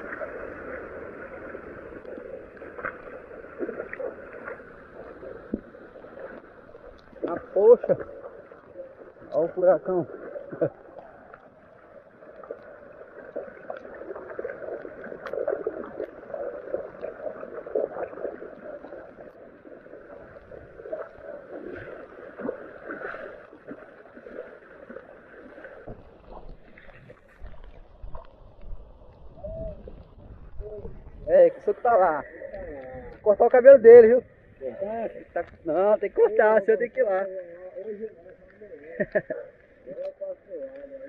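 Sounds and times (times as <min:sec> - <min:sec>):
heavy rain splashing on water: 0:00.0 - 0:28.0
low rumble: 0:25.9 - 0:33.4.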